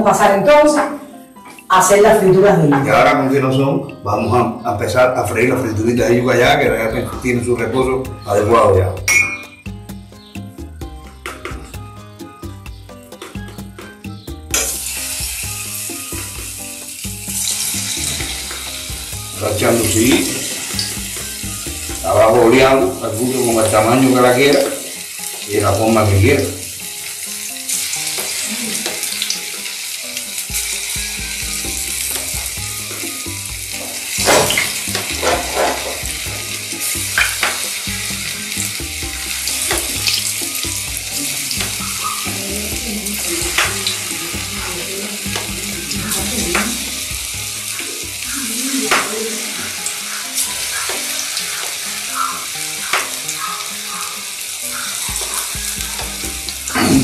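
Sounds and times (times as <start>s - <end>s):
fritters sizzling in hot oil: 13.4s - 57.0s.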